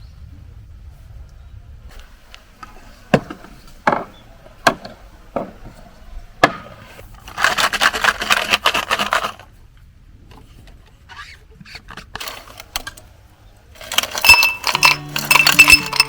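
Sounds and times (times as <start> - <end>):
clattering and rustling: 2.6 - 9.5, 13.8 - 16.0.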